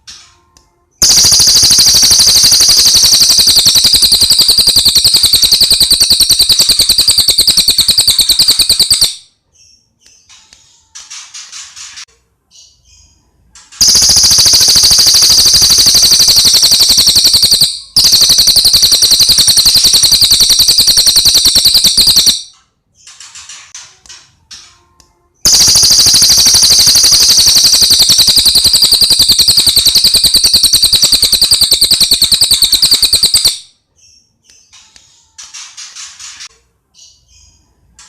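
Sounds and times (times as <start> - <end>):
bird rattling trill: 1.0 - 9.3, 13.8 - 22.5, 25.5 - 33.7.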